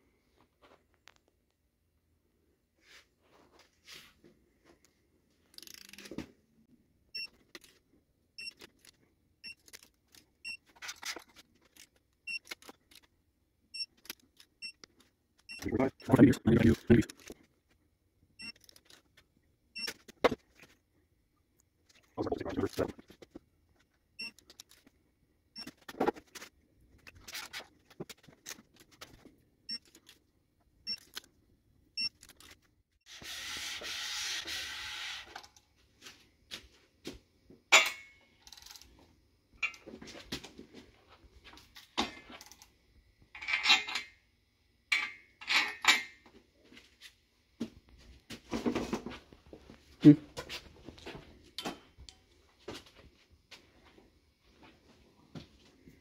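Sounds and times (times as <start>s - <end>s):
metal parts clinking: 43.4s - 44.1s, 44.9s - 46.1s.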